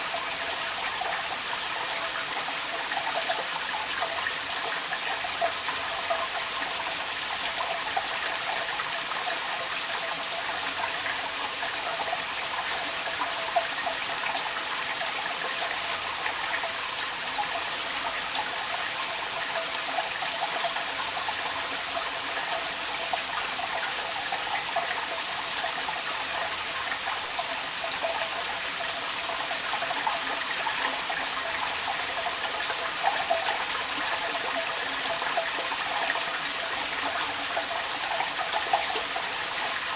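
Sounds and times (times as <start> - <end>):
water drips and splashes: 0.0 - 39.9
water pouring from downpipe: 0.0 - 39.9
rain falling: 15.6 - 39.9.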